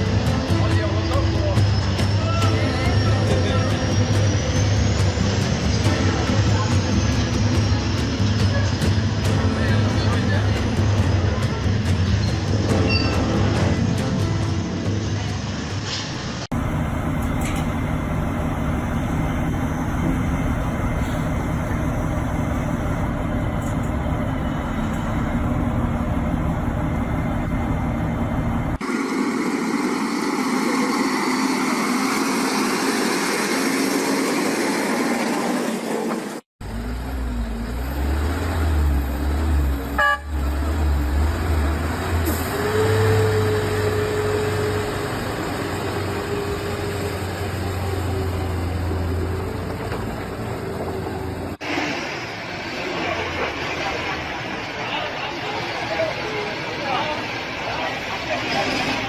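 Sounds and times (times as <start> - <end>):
road noise: 0.0 - 59.0
vehicle engines: 0.0 - 59.0
vehicle horn long note: 40.0 - 40.4.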